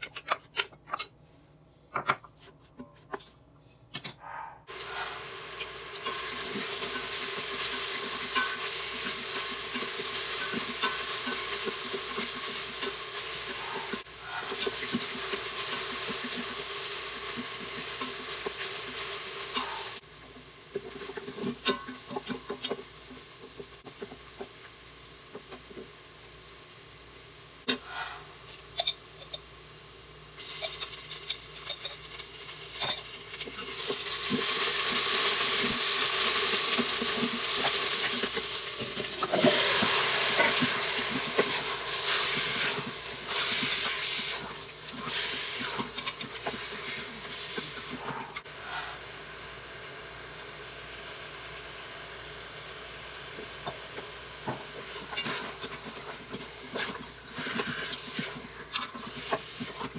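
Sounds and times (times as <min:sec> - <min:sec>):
meat sizzling in hot oil: 0:04.7 - 0:27.7, 0:28.7 - 0:59.9
wooden spoon stirring and scraping: 0:06.0 - 0:20.0, 0:30.6 - 0:49.0, 0:54.4 - 0:59.9.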